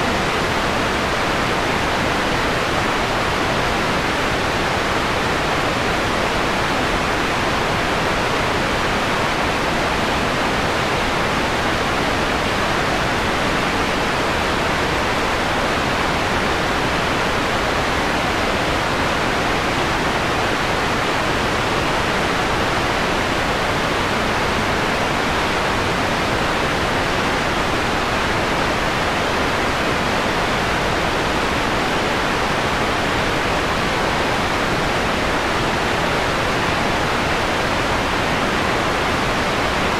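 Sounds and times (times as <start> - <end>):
filtered white noise hiss: 0.0 - 39.9.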